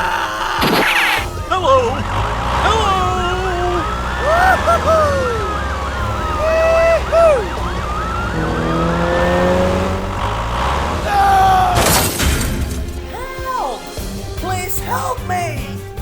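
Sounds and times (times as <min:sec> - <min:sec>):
siren wailing: 0:00.0 - 0:11.9.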